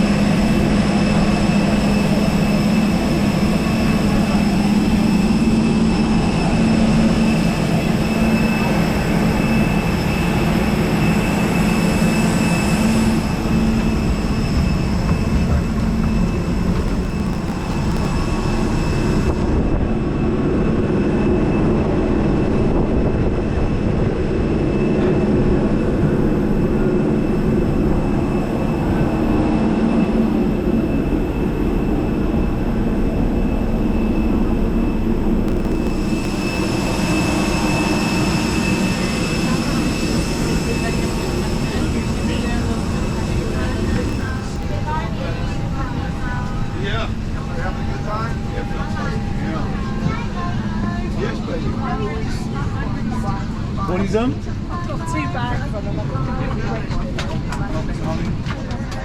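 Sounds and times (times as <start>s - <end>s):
high whining tones: 0.0s - 21.6s, 24.7s - 50.2s.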